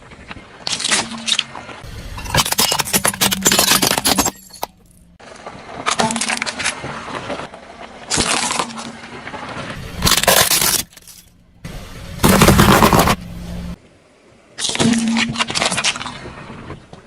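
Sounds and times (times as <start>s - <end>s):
tyres crushing brittle objects: 0.6s - 5.1s, 8.1s - 9.2s, 9.8s - 11.4s, 12.2s - 13.2s.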